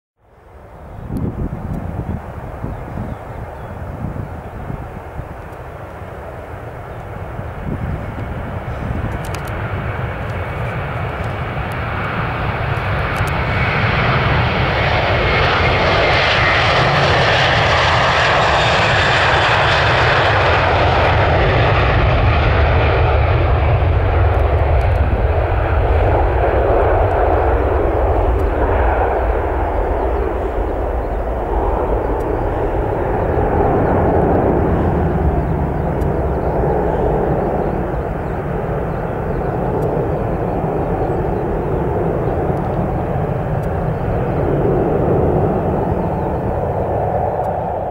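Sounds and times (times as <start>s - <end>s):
jet engines at takeoff thrust: 0.2s - 47.9s.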